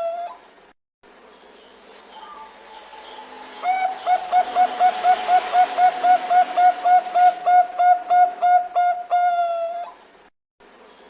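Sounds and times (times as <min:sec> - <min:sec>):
dove cooing: 0:03.6 - 0:10.0.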